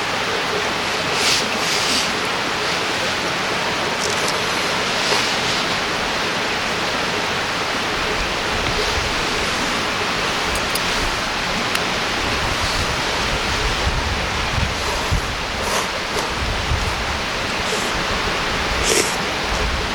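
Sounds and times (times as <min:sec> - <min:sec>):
river water rushing: 0:00.0 - 0:19.9.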